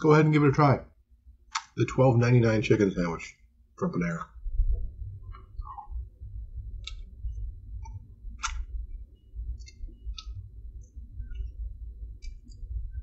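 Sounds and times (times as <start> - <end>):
low rumble: 4.3 - 13.0.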